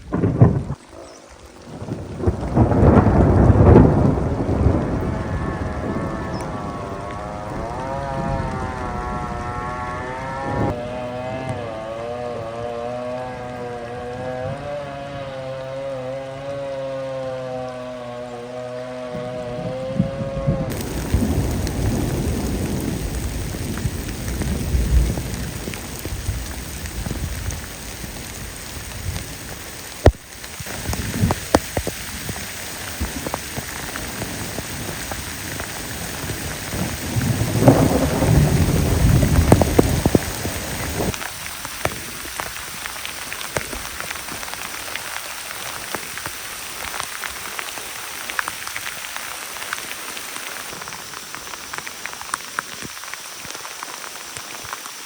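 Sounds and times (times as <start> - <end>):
rolling thunder: 0.0 - 10.8, 19.6 - 29.2, 33.0 - 41.2
raindrops pattering: 0.0 - 55.0
steady rain: 0.0 - 55.0.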